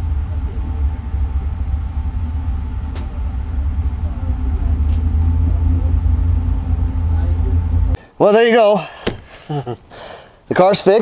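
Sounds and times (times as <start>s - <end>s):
race car engine idling: 0.0s - 8.0s.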